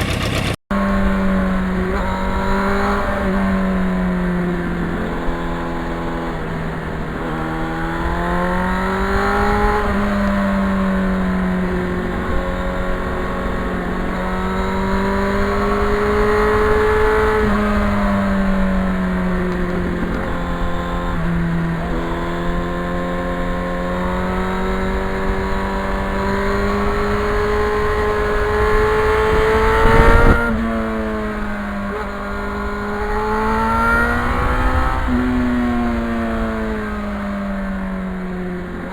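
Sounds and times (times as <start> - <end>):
motorcycle engine shifting gears: 0.0 - 38.9
wind noise: 24.5 - 37.2.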